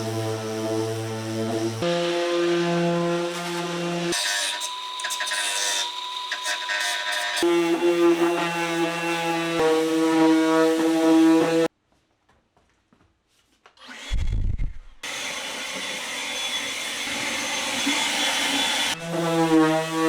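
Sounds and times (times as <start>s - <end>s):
power tool motor whine: 3.2s - 11.7s
noisy power tool running: 15.0s - 20.0s.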